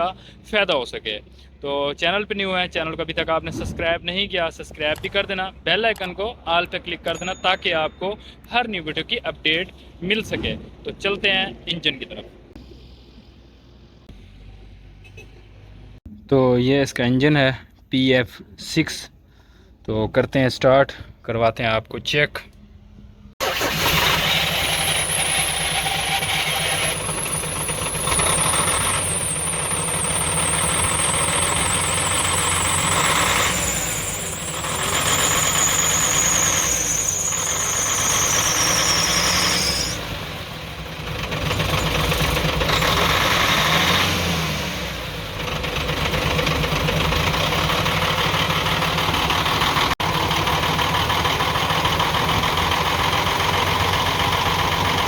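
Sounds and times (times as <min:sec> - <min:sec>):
high-pitched squeal: 0:23.4 - 0:40.2
misfiring diesel engine running: 0:23.4 - 0:55.0.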